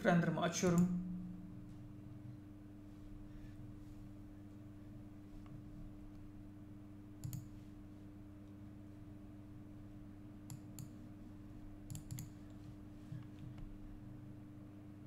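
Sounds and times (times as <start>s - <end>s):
steady low hum: 0.0s - 15.0s
computer mouse clicks: 7.2s - 7.6s, 10.5s - 11.0s, 11.9s - 12.6s.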